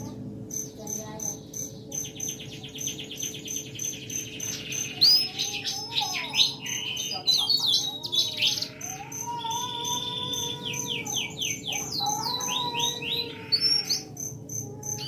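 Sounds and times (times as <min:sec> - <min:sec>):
songbirds singing: 0:00.0 - 0:15.0.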